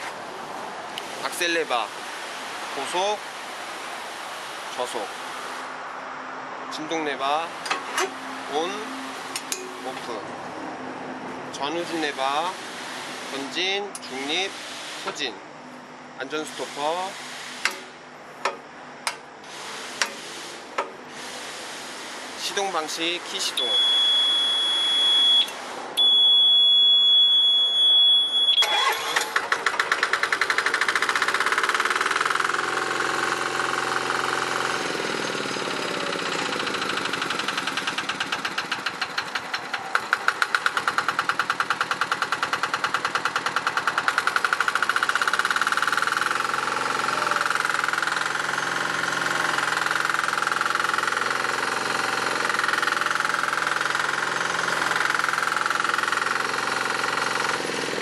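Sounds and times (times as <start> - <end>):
diesel engine starting and running: 16.2 - 58.0
steady high-pitched beep: 23.6 - 28.7.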